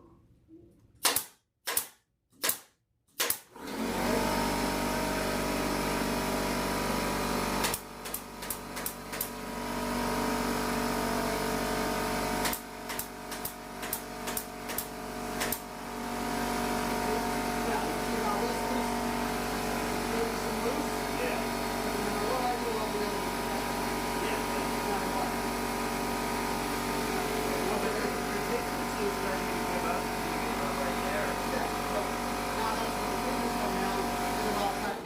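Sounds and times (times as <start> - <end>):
staple gun firing: 1.0 - 3.5, 7.6 - 9.3, 12.4 - 15.6
air compressor motor hum: 3.6 - 35.0.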